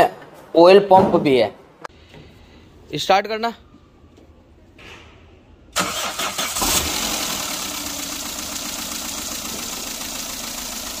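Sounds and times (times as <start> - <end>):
car engine idling: 5.8 - 11.0
engine starter cranking: 5.8 - 11.0.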